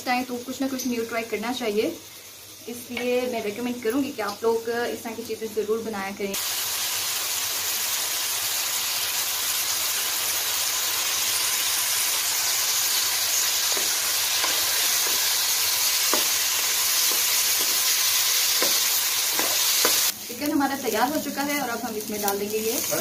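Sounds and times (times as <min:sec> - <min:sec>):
chicken sizzling in oil: 0:00.0 - 0:23.0
spatula scraping pan: 0:13.3 - 0:20.1.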